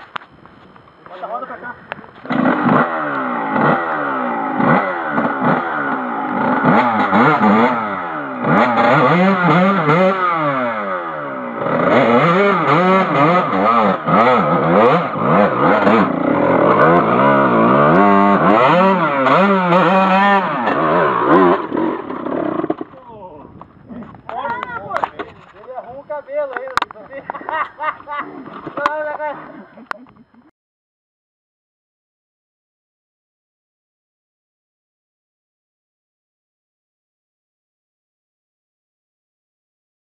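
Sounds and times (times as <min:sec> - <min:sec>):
motorcycle engine revving: 0:01.3 - 0:25.5.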